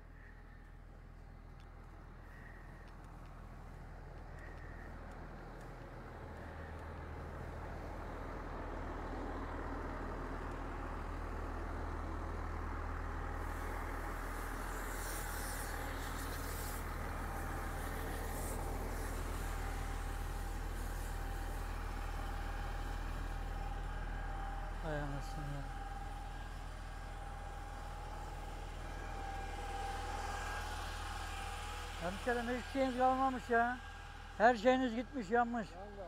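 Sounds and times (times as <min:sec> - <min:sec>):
vehicle engine humming: 0:00.0 - 0:36.0
hiss: 0:13.4 - 0:21.6.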